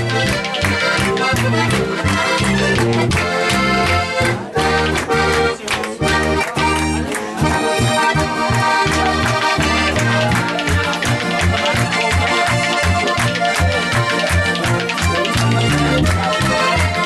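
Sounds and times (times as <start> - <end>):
button accordion: 0.0 - 17.0.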